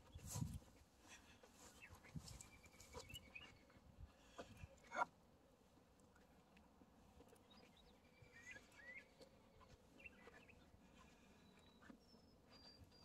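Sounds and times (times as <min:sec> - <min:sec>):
faint bird chirps: 0:07.5 - 0:09.3.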